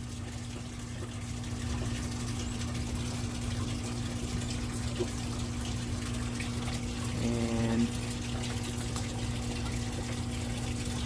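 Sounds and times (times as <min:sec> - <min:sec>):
water running through pipes: 0:00.0 - 0:11.0.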